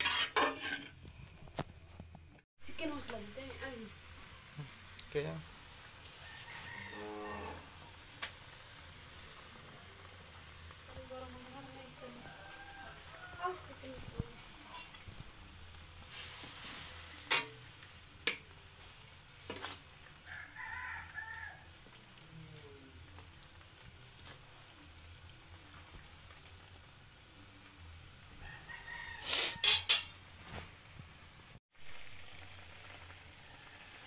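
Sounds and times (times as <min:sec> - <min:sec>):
spices sizzling in oil: 0:00.0 - 0:02.0, 0:02.6 - 0:34.0
rooster crowing: 0:06.2 - 0:07.9, 0:12.0 - 0:13.6, 0:20.2 - 0:21.7, 0:28.4 - 0:30.0, 0:33.4 - 0:34.0.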